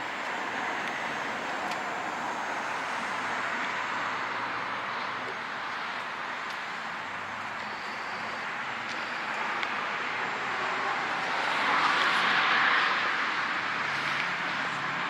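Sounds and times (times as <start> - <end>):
car passing by: 7.9 - 15.0.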